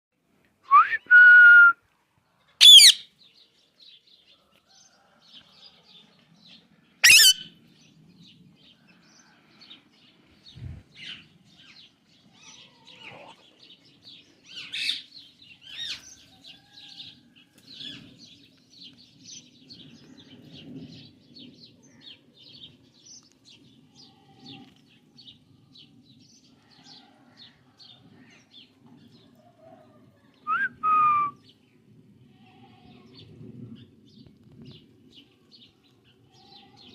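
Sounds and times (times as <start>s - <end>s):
parrot screeches: 2.6s - 3.0s, 7.0s - 7.5s.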